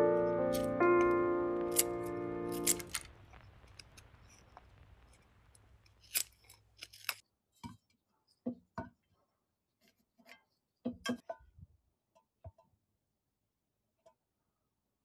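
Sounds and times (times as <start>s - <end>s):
small objects clicking and knocking: 1.7s - 7.2s.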